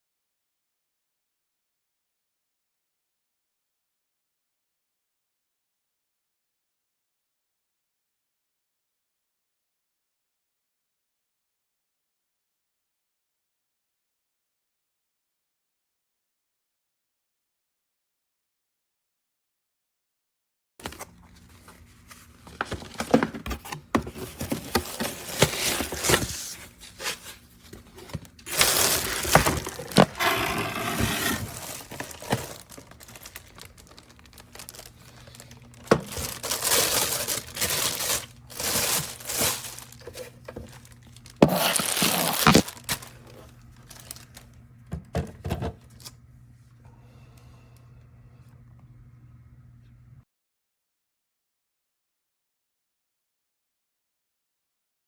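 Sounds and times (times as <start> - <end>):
crinkling handling noises: 20.8 - 46.1
faint low hum: 42.6 - 50.2.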